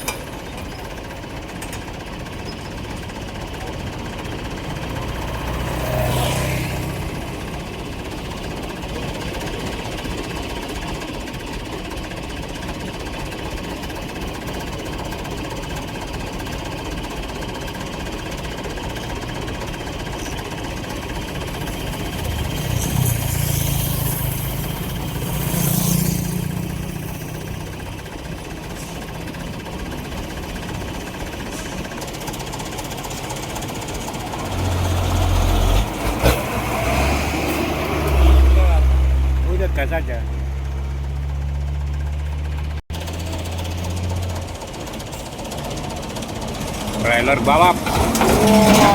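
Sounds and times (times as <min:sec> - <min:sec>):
vehicle engine and road noise: 0:00.0 - 0:48.9.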